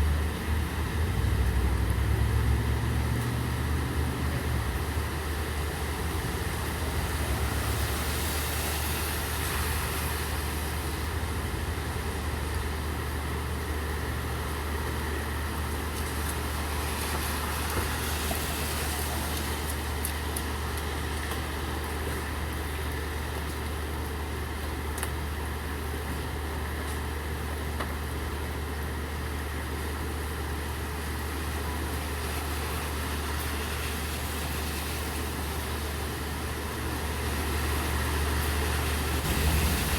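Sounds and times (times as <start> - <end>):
steady rain: 0.0 - 39.9
vehicle engine idling: 37.9 - 39.9.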